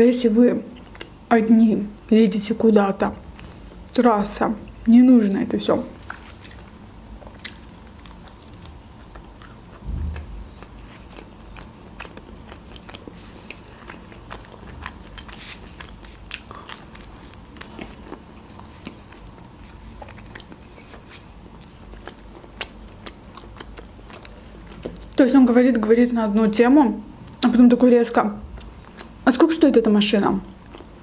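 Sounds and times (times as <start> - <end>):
biting and chewing crunchy food: 5.7 - 25.2, 30.2 - 31.0
low thump: 9.8 - 10.5.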